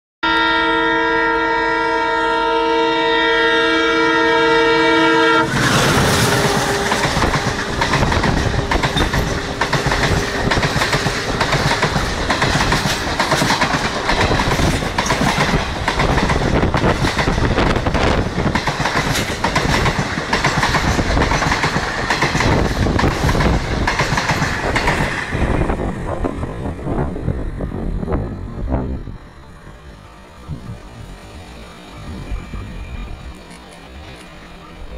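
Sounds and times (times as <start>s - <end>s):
train horn chord: 0.2s - 7.5s
train wheels clattering: 5.6s - 27.1s.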